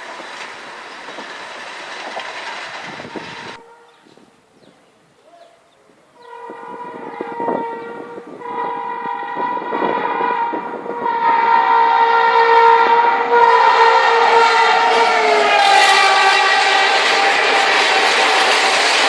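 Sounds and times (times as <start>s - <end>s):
train rumbling: 0.0s - 4.4s, 6.2s - 19.0s
locomotive horn blast: 6.2s - 18.9s.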